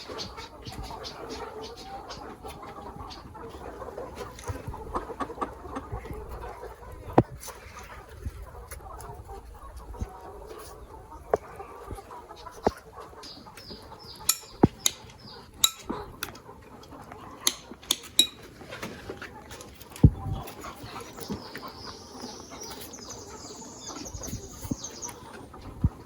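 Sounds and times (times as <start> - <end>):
chickens clucking: 0.0 - 26.0
high falling chirps: 14.1 - 15.0
sharp clicks or knocks: 14.3 - 16.0, 17.4 - 18.4.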